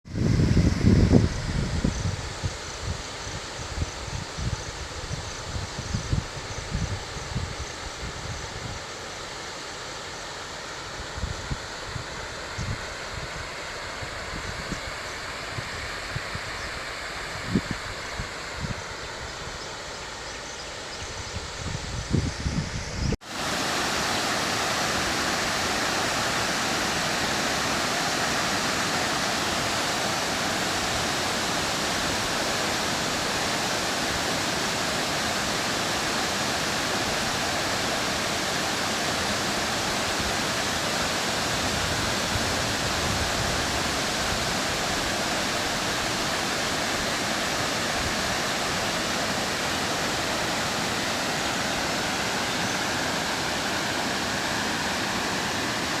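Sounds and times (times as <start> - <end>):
waterfall rushing: 23.2 - 56.0.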